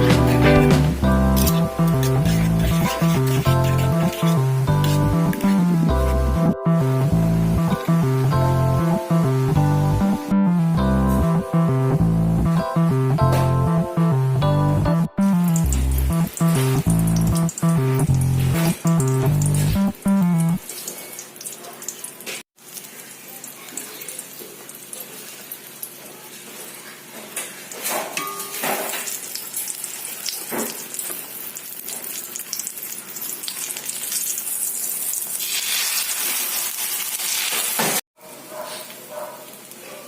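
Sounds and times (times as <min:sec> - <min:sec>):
background music: 0:00.0 - 0:20.6
oil sizzling in a frying pan: 0:15.4 - 0:19.8, 0:20.6 - 0:38.0.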